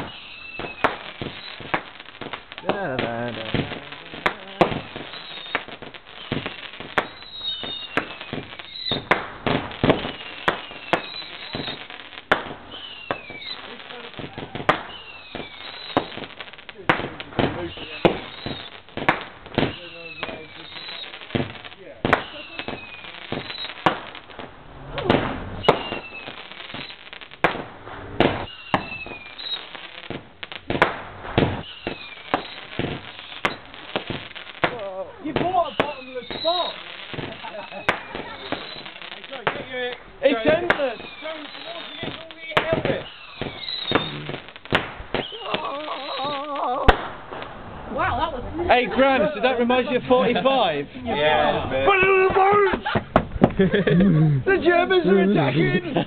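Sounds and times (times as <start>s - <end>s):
firework whistles sliding down: 0.0s - 2.3s, 3.5s - 16.6s, 17.4s - 19.0s, 19.6s - 30.6s, 31.3s - 34.5s, 35.4s - 39.4s, 40.6s - 48.0s
fireworks bangs and crackles: 0.0s - 56.0s.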